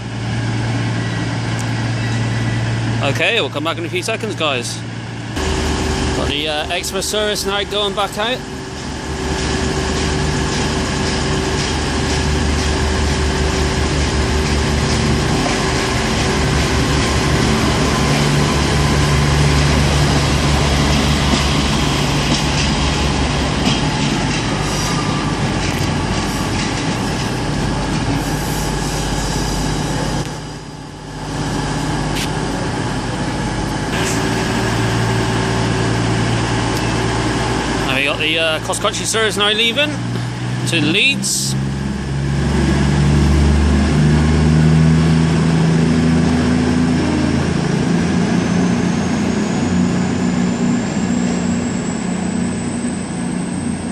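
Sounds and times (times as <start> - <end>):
train diesel engine throbbing: 0.0 - 53.9.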